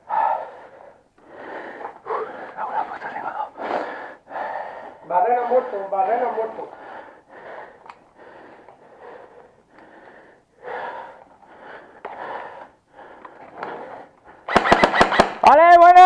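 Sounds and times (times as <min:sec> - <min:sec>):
heavy breathing: 0:00.0 - 0:14.5
rapid sharp clicks: 0:14.5 - 0:15.4.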